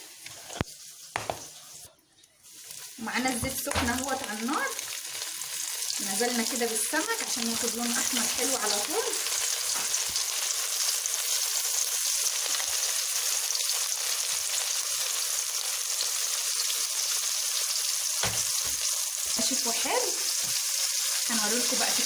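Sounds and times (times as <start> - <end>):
fish frying in hot oil: 2.4 - 22.0
short knock: 18.2 - 18.8.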